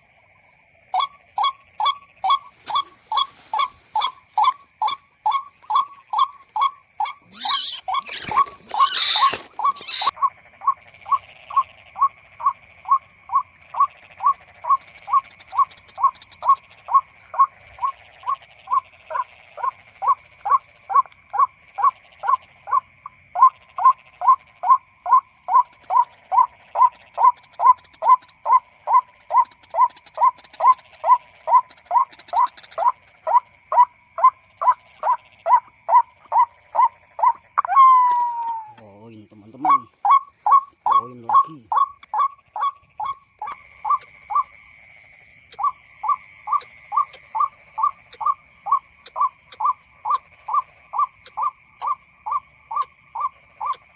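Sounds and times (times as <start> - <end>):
harsh bird call kwak: 1.0 - 10.1, 37.2 - 44.5.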